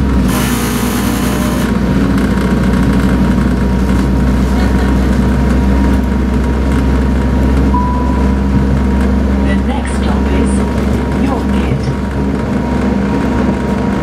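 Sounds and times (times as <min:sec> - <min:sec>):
low train engine drone: 0:00.0 - 0:14.0.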